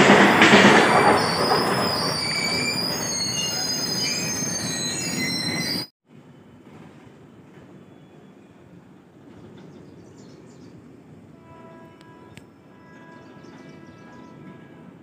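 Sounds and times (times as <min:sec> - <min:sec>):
train wheel clatter: 0:00.0 - 0:05.8
high-pitched wheel squeal: 0:00.5 - 0:05.9.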